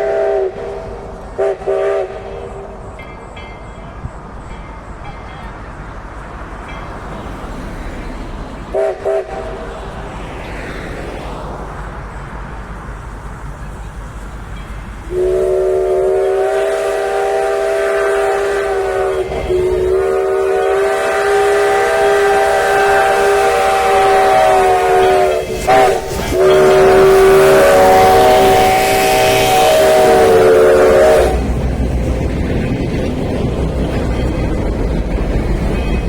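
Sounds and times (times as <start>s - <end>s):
train horn: 0.0s - 3.9s, 8.7s - 9.9s, 15.0s - 31.8s, 33.6s - 36.0s
train rumbling: 0.0s - 36.0s.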